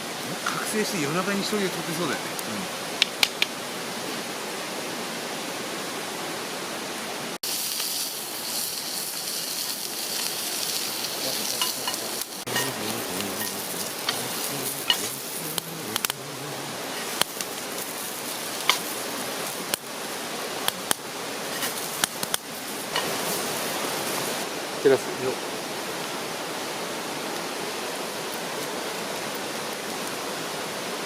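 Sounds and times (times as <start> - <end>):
food sizzling over fire: 0.0 - 4.4, 7.3 - 31.0
fire crackling and popping: 0.2 - 3.6, 7.4 - 24.5, 27.3 - 30.2.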